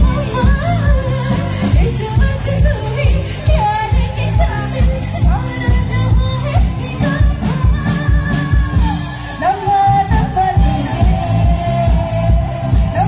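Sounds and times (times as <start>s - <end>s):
song with singing over heavy bass: 0.0s - 13.0s.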